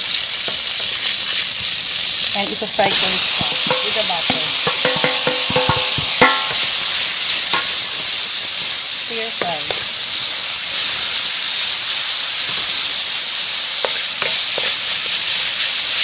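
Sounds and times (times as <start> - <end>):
meat sizzling in a pan: 0.0 - 16.0
wooden spatula knocking on pan: 3.2 - 8.0, 13.8 - 14.8.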